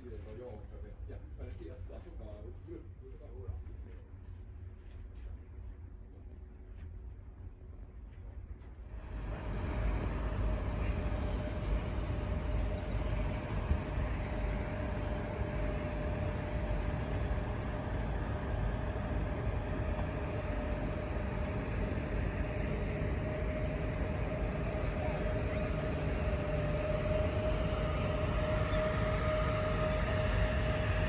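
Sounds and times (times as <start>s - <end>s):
ship machinery hum: 5.3s - 31.0s
mid-pitched machine whine: 8.8s - 31.0s.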